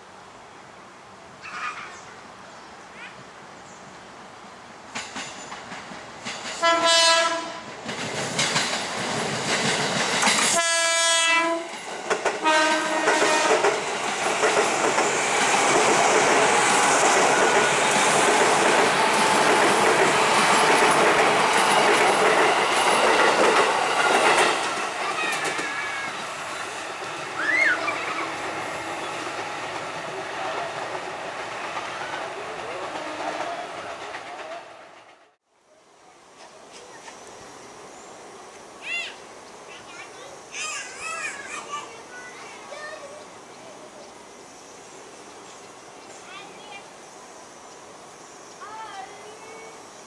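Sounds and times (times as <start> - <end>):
train running on rails: 4.2 - 35.4, 36.0 - 50.0
train horn blasts: 6.6 - 7.7, 10.5 - 11.8, 12.4 - 13.7.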